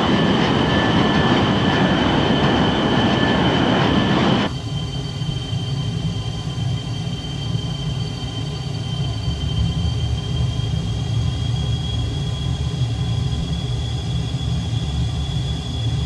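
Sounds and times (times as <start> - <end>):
high jet whistle: 0.0 - 6.5
jet engine roar: 0.0 - 16.0.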